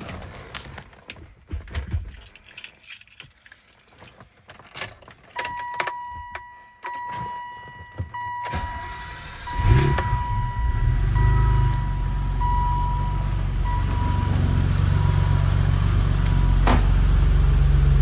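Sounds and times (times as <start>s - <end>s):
keys jingling in ignition: 1.8s - 14.3s
high warning tone: 5.5s - 16.6s
car engine idling: 8.5s - 18.0s.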